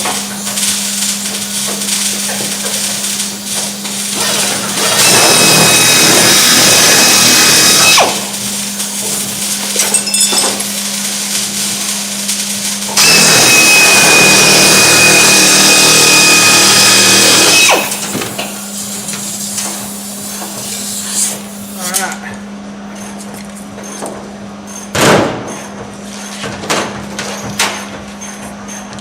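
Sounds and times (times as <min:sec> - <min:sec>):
power tool whining: 0:04.1 - 0:09.1, 0:12.9 - 0:19.2.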